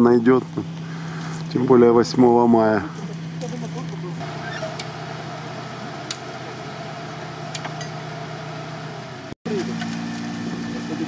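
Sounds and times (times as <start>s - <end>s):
car engine idling: 2.7s - 11.0s.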